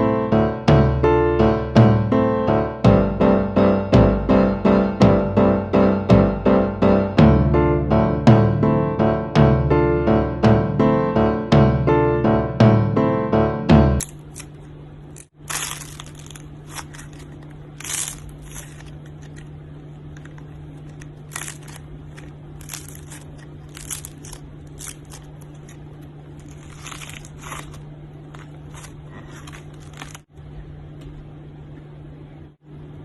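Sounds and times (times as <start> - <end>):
steady low hum: 0.0 - 33.0
crunching and crackling: 14.0 - 30.3.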